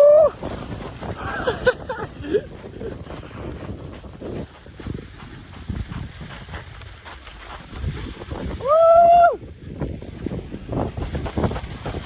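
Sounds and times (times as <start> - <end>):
person shouting whoo: 0.0 - 0.4, 8.6 - 9.4
sledge sliding over snow: 0.0 - 12.0
wind on microphone: 0.0 - 12.0.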